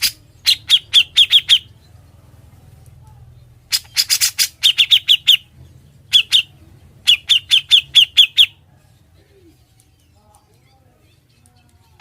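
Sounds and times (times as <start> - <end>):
bird calling sharp downward notes: 3.7 - 5.5, 6.1 - 8.6.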